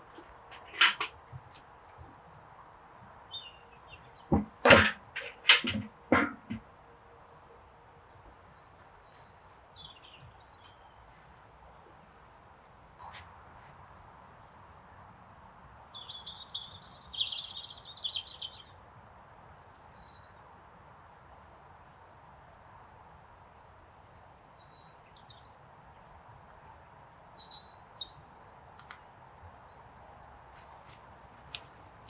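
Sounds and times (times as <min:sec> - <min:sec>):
faint outdoor background hiss: 0:00.0 - 0:32.0
small birds chirping: 0:03.0 - 0:04.4, 0:08.2 - 0:11.4, 0:13.0 - 0:18.8, 0:26.8 - 0:29.0.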